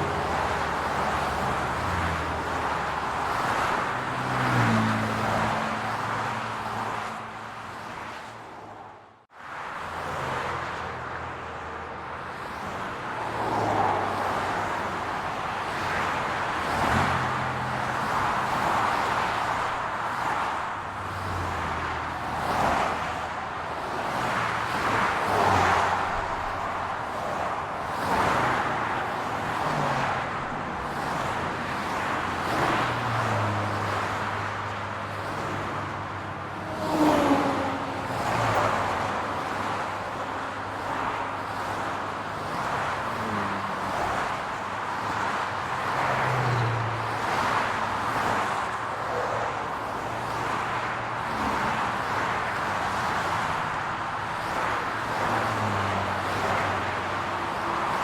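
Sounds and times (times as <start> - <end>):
loud vehicle passing: 0.0 - 7.2, 28.0 - 41.8, 42.4 - 53.8, 54.4 - 58.0
road traffic hum: 0.0 - 58.0.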